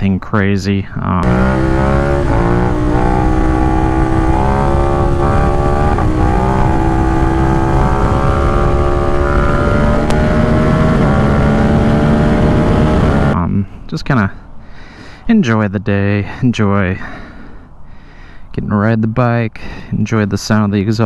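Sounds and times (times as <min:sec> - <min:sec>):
motorcycle engine under load: 0:01.2 - 0:13.4.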